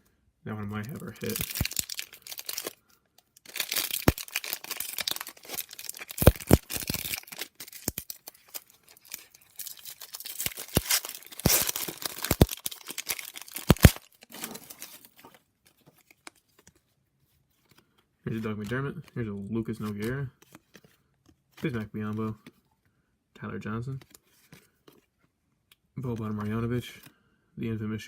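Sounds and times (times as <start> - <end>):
wrapper tearing and crinkling: 0.8 - 15.4.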